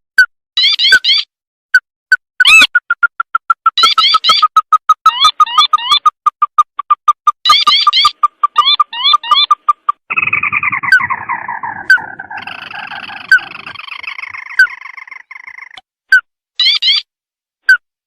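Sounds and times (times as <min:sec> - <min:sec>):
crake calling: 0:02.4 - 0:15.8
descending bird trill: 0:02.4 - 0:15.8
rising chirps: 0:02.4 - 0:15.8.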